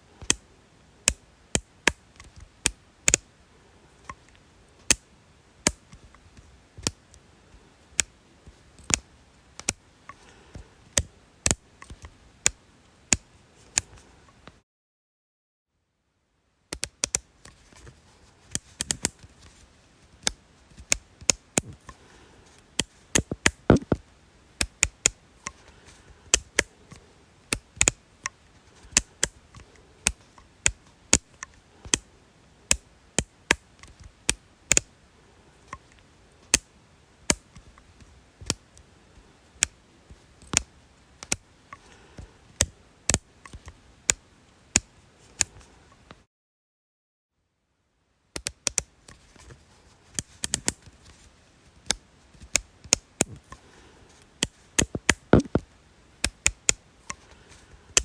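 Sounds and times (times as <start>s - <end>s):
sharp crisp clicks: 8.8s - 10.2s, 22.8s - 24.0s, 54.4s - 57.2s.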